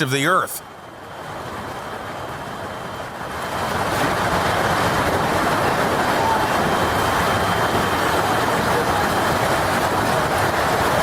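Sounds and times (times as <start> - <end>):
heavy rain: 0.0 - 11.0
storm wind: 0.6 - 11.0.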